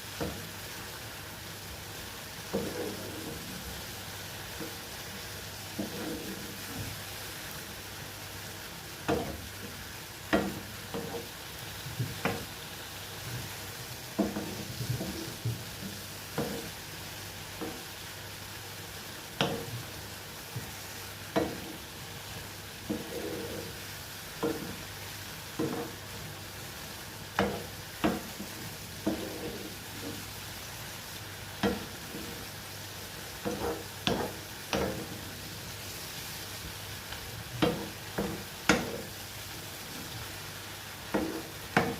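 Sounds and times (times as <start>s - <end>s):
mushrooms sizzling in oil: 0.0s - 41.9s
utensil scraping pan: 2.5s - 3.5s, 5.7s - 6.8s, 14.2s - 16.8s, 22.9s - 23.8s, 25.6s - 26.1s, 27.4s - 30.3s, 31.6s - 32.5s, 33.4s - 35.4s, 37.6s - 39.1s, 41.1s - 41.9s.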